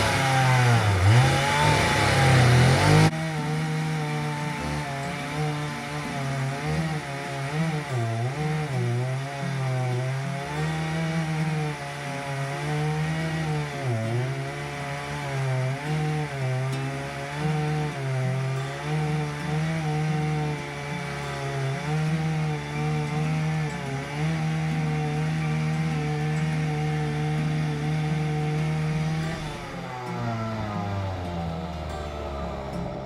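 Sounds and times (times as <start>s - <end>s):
chainsaw cutting wood: 0.0s - 33.0s.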